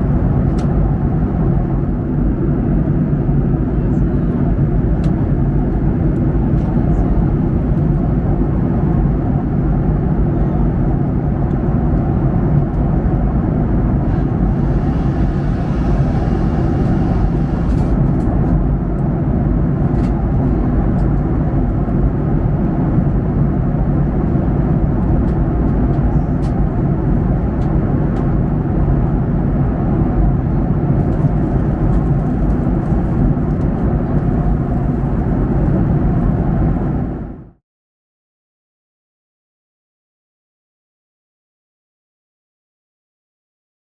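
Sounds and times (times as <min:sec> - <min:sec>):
airplane cabin rumble: 0:00.0 - 0:37.6.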